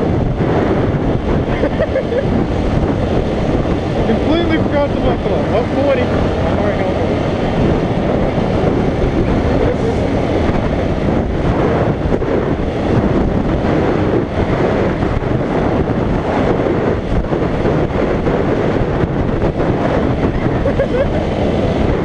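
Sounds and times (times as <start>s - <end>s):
motorcycle engine running: 0.0s - 22.0s
wind buffeting microphone: 0.0s - 22.0s.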